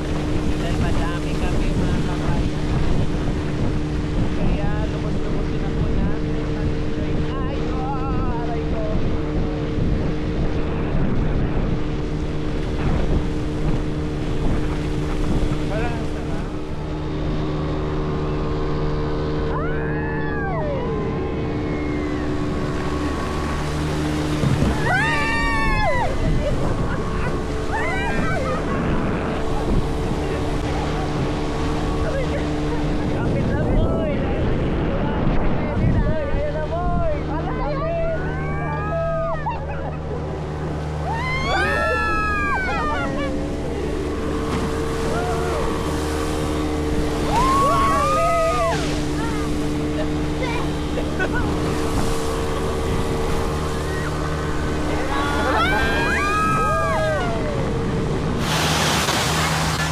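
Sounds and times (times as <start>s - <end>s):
motorboat engine running: 0.0s - 59.9s
water splashing: 0.0s - 59.9s
wind: 0.0s - 59.9s
people shrieking: 19.5s - 22.5s, 24.7s - 29.4s, 38.1s - 40.0s, 41.0s - 43.7s, 45.0s - 45.8s, 47.2s - 49.6s, 53.8s - 57.8s
riders crying out: 41.0s - 43.5s, 47.3s - 49.5s, 54.9s - 57.8s.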